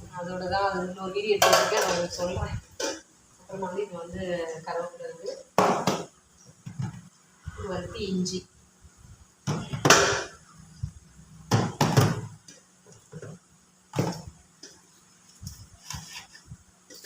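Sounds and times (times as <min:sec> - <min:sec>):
plastic containers rustling and knocking: 0:05.2 - 0:07.2, 0:11.4 - 0:17.0.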